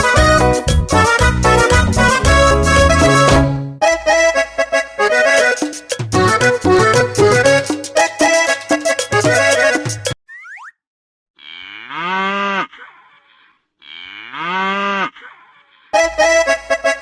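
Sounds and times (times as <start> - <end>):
accordion music: 0.0 - 10.2, 16.0 - 17.0
cow mooing: 11.4 - 12.9, 13.8 - 15.3.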